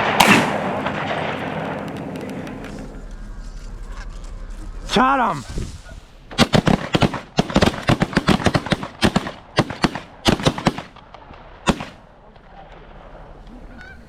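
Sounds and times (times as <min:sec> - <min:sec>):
shotgun fire volley: 0:00.0 - 0:03.1, 0:05.7 - 0:13.4.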